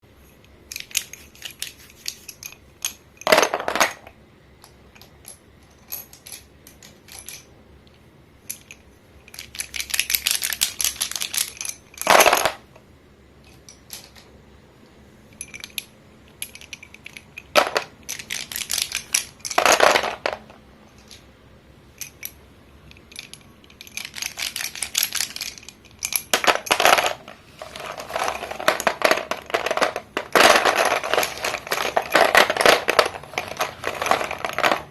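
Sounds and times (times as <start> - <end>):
chalk crunching and crackling: 1.1 - 2.4.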